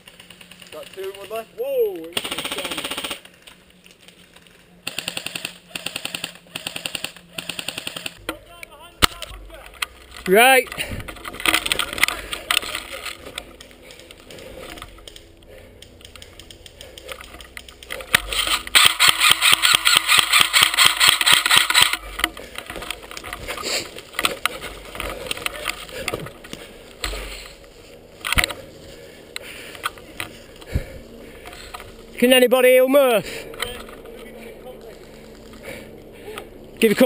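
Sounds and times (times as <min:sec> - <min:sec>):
airsoft gun full-auto burst: 0:02.2 - 0:03.3, 0:04.8 - 0:08.2, 0:18.1 - 0:22.0.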